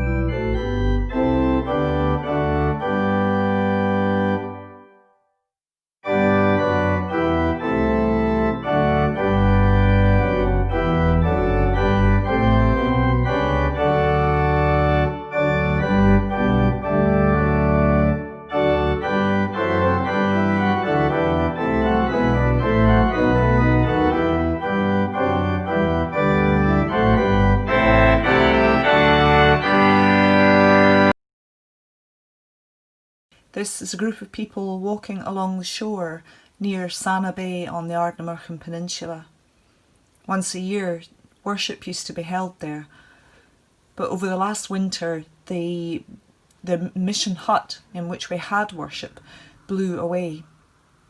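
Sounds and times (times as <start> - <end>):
organ playing hymn chords: 0.0 - 5.1, 6.0 - 31.2.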